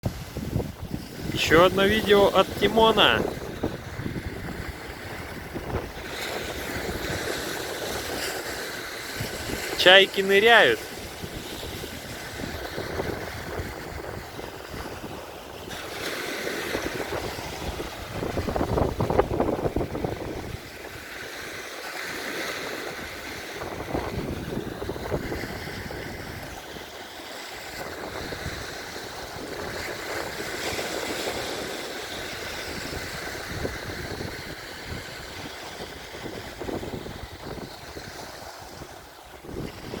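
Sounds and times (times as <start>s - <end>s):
wind buffeting microphone: 0.0s - 1.4s, 3.2s - 9.8s, 10.8s - 21.2s, 22.8s - 26.8s, 27.7s - 40.0s
waves washing: 0.0s - 40.0s.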